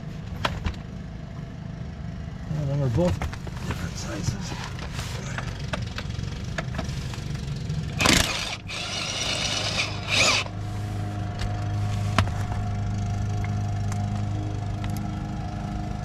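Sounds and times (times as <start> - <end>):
machine hum: 3.3 - 16.0.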